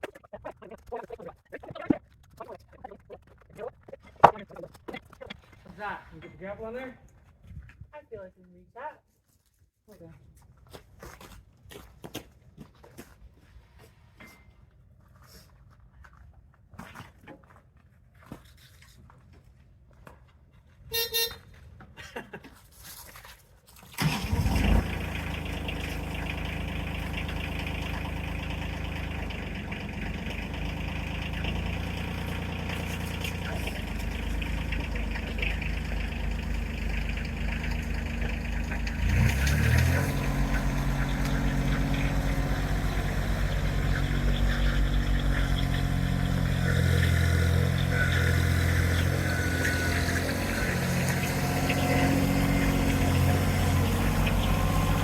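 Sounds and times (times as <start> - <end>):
brief tone: 14.2 - 14.6, 20.9 - 21.4, 47.8 - 50.3
tractor engine running: 24.0 - 55.0.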